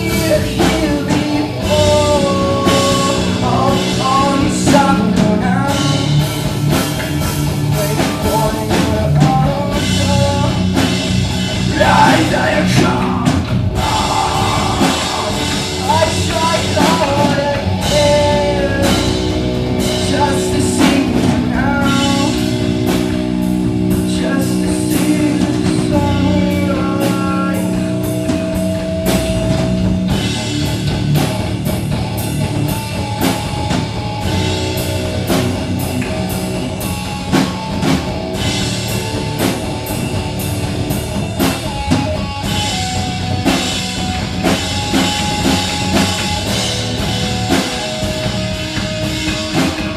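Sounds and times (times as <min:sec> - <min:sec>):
person singing: 0:00.0 - 0:06.3, 0:07.7 - 0:10.8, 0:11.7 - 0:22.6, 0:24.0 - 0:28.6
live rock band playing: 0:00.0 - 0:49.9.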